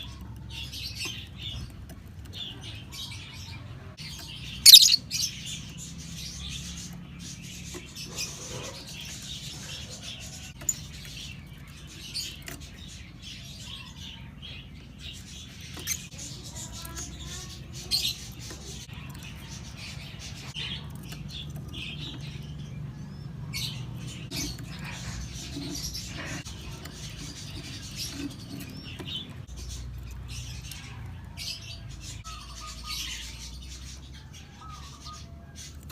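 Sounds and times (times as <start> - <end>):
short sharp bird chirps: 4.7 - 5.0.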